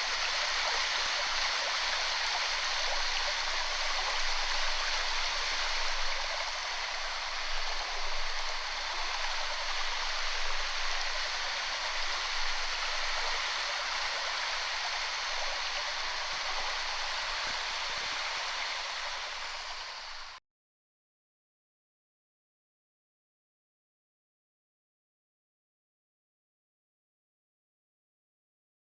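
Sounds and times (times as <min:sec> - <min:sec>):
waterfall rushing: 0:11.0 - 0:20.4.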